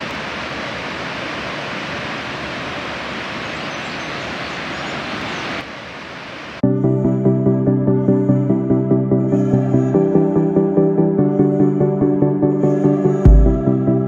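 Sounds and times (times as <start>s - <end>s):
waterfall rushing: 0.0s - 6.6s
music: 6.6s - 14.0s.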